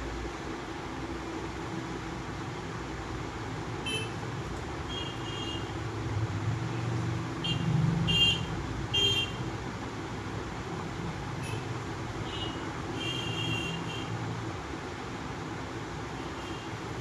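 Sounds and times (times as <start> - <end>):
vehicle rumbling past: 5.8 - 8.8.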